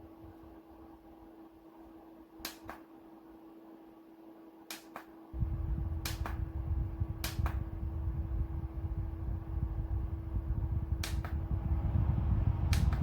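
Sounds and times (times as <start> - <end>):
faint steady hum: 0.0 - 13.0
low rumble of air on microphone: 5.4 - 13.0.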